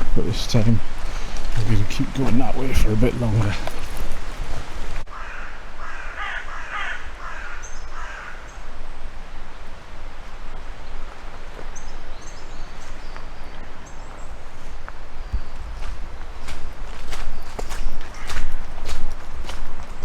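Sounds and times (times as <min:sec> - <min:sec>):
crow cawing: 0:05.1 - 0:08.6, 0:18.1 - 0:18.6
small birds chirping: 0:10.7 - 0:19.4.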